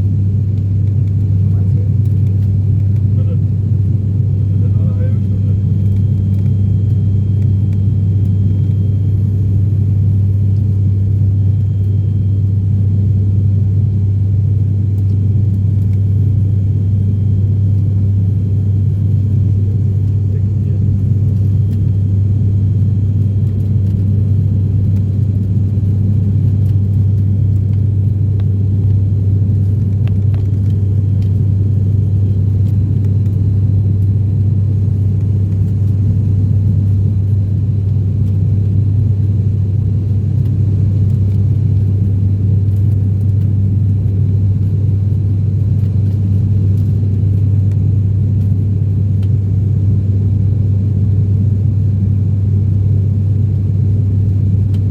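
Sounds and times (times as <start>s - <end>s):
turboprop engines droning: 0.0s - 54.9s.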